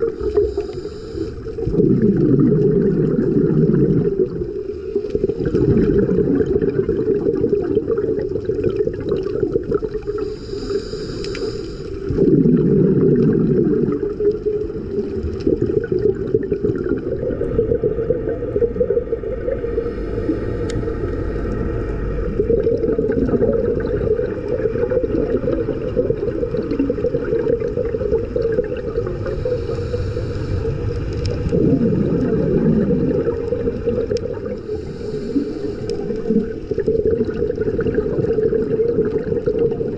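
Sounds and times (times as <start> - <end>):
regulator inhale hiss: 0.0 - 1.7, 10.0 - 12.2, 19.6 - 22.1, 29.1 - 31.5, 34.5 - 36.3
exhaled bubbles gurgling: 0.0 - 39.9
muffled underwater noise: 9.6 - 39.9.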